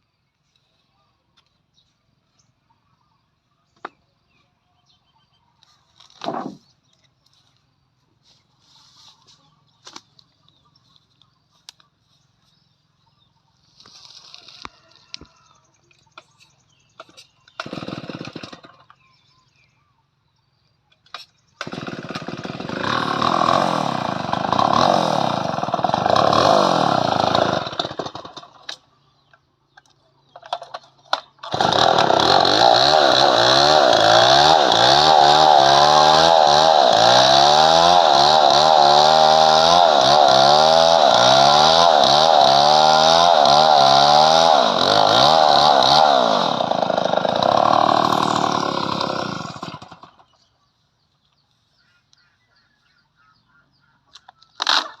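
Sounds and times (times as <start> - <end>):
chainsaw cutting wood: 6.1 - 6.7, 17.0 - 19.0, 21.1 - 28.8, 30.5 - 50.3, 54.6 - 55.0
chainsaw running: 17.5 - 19.1, 21.6 - 28.8, 30.5 - 50.5, 54.6 - 55.0.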